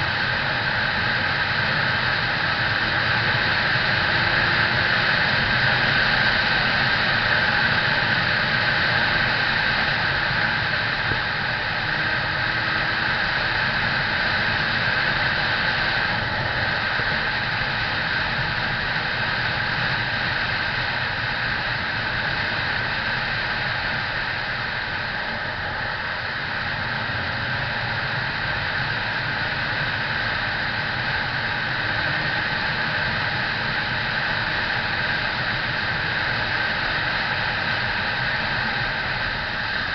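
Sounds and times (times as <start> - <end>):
motorcycle rushing noise: 0.0 - 20.9
low engine drone: 0.0 - 39.9.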